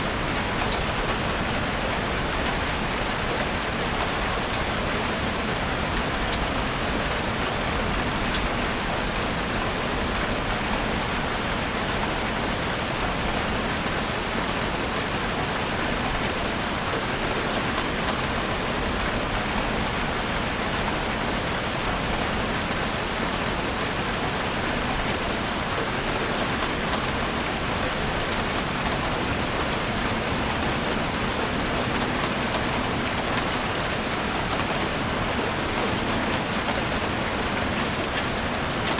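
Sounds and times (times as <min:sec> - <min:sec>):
heavy rain on a roof: 0:00.0 - 0:38.9.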